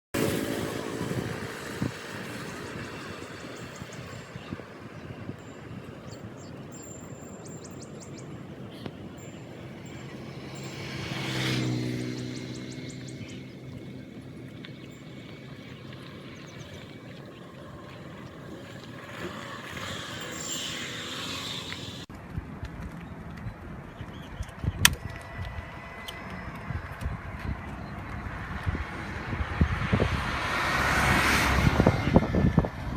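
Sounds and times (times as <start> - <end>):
motorcycle passing by: 0.2 - 22.1, 24.0 - 32.9
bird chirps: 2.3 - 18.4.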